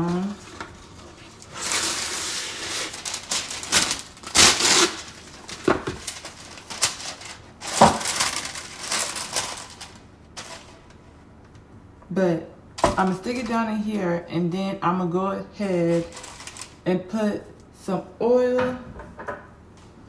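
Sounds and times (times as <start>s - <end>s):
parchment paper rustling: 0.0s - 11.2s, 12.8s - 13.9s, 15.6s - 17.6s.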